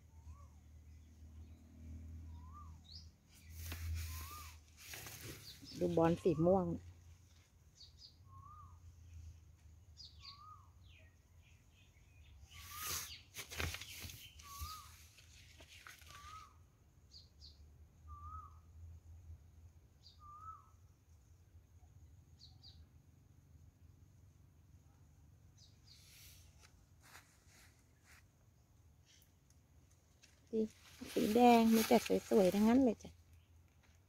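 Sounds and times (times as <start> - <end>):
thin high bird chirps: 2.3 - 6.8, 7.7 - 9.3, 9.9 - 18.6
leaves rustling: 3.4 - 6.7, 12.5 - 16.5, 26.1 - 28.3, 30.1 - 33.1
bird wavering whistle: 4.0 - 4.6, 8.3 - 8.8, 14.4 - 15.0, 20.2 - 20.7.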